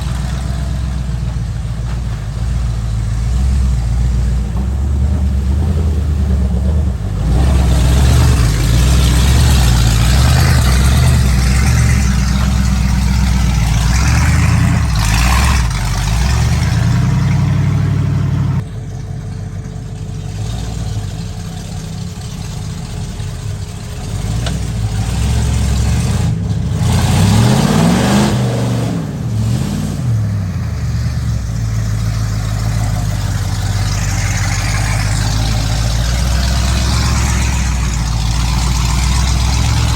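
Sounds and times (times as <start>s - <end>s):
truck engines revving: 0.0s - 39.9s.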